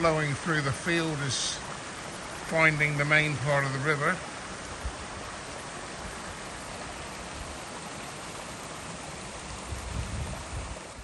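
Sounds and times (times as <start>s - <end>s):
floodwater rushing: 0.0s - 11.0s
wind buffeting microphone: 9.2s - 11.0s.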